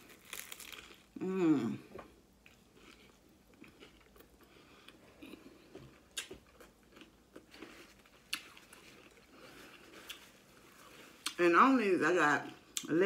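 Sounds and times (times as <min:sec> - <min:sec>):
person chewing crunchy taco: 0:00.0 - 0:01.2, 0:02.4 - 0:11.4.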